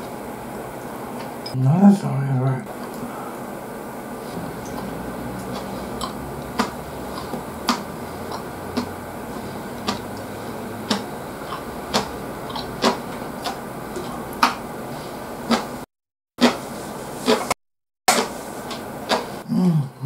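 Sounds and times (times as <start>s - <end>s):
low room hum: 0.0s - 15.8s
person chewing with wet mouth smacks: 4.3s - 14.6s, 15.5s - 15.7s.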